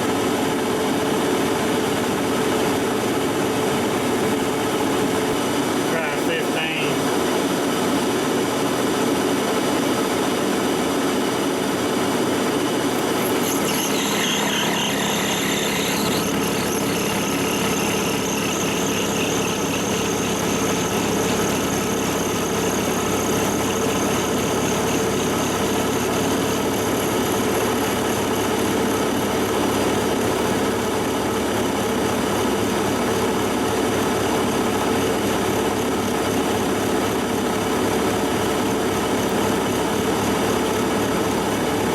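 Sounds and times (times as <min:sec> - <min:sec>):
lathe humming: 0:00.0 - 0:41.9
lathe cutting steel: 0:12.2 - 0:33.1.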